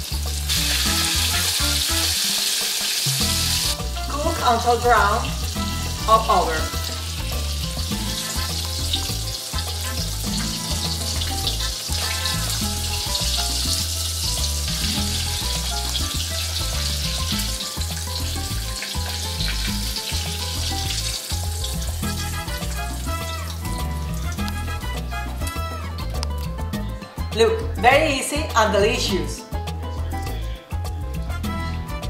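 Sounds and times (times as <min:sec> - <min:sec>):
croquettes sizzling in hot oil: 0:00.0 - 0:26.2
background music with bass line: 0:00.0 - 0:32.0.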